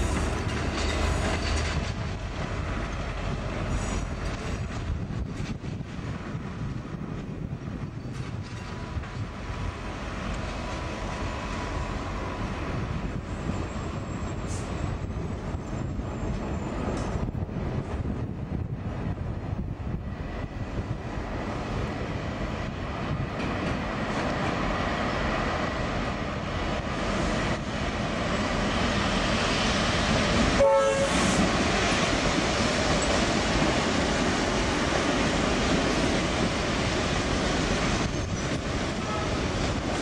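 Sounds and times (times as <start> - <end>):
passenger train running past: 0.0 - 40.0
train horn toot: 30.6 - 31.4, 39.0 - 39.5.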